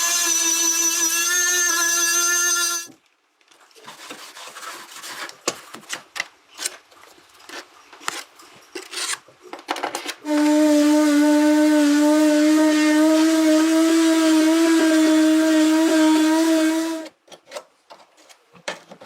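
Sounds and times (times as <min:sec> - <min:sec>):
power tool whining: 0:00.0 - 0:02.9
scraping and rubbing strokes: 0:03.7 - 0:05.4.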